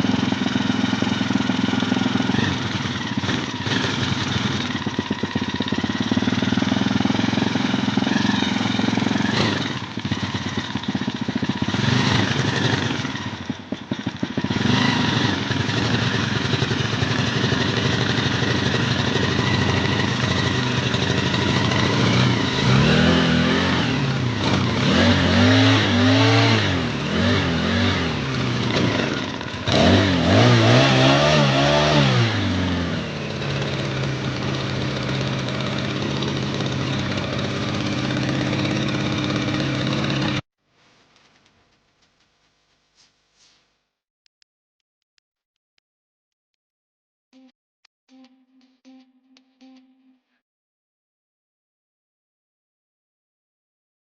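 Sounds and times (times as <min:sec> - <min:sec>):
small engine revving: 0:00.0 - 0:40.5.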